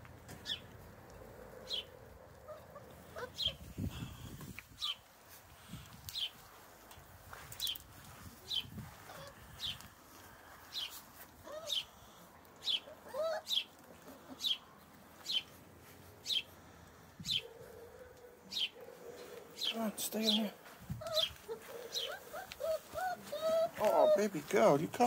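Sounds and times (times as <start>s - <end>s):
small bird calling: 0.4s - 0.7s, 1.6s - 4.0s, 10.7s - 15.6s, 17.2s - 24.2s.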